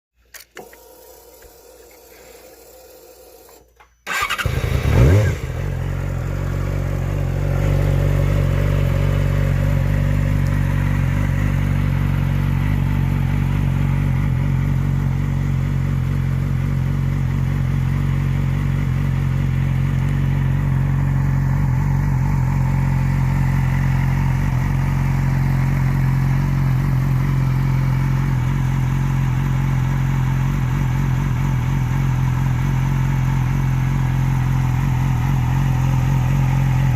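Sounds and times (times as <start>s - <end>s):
motorcycle engine starting and idling: 0.2s - 36.9s
engine revving: 4.1s - 28.8s.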